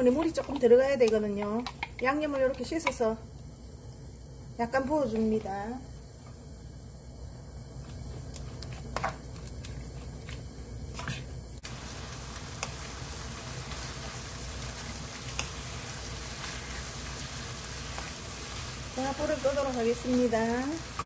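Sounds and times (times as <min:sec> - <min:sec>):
food sizzling in a frying pan: 0:04.5 - 0:06.2, 0:11.6 - 0:21.0.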